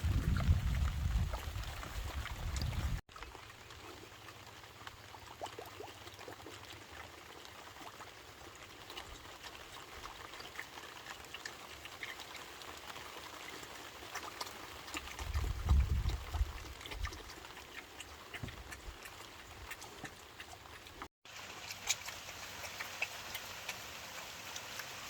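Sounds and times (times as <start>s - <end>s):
faint trickling water: 0.0s - 25.0s.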